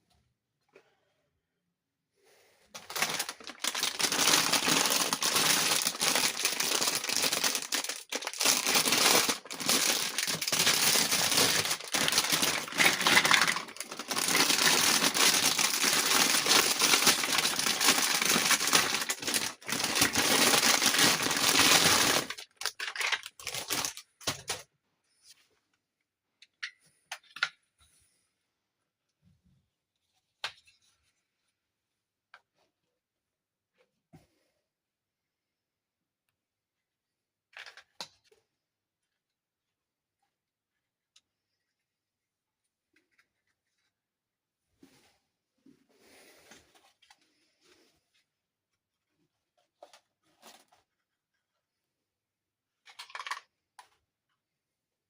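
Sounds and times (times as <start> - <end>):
packaging crinkling: 2.8 - 24.6.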